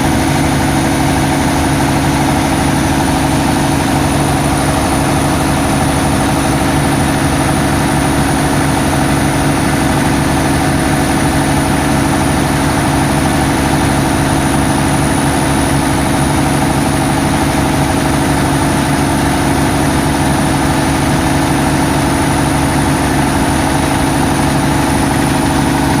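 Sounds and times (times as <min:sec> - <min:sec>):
generator engine droning: 0:00.0 - 0:26.0.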